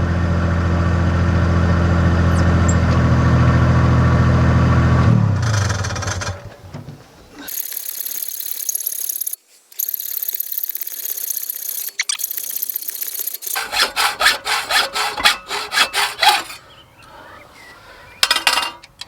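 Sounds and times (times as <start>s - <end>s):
diesel engine running: 0.0s - 6.6s.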